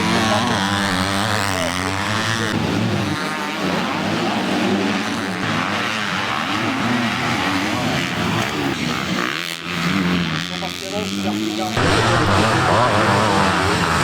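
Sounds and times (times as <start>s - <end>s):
motorcycle engines revving: 0.0s - 14.0s.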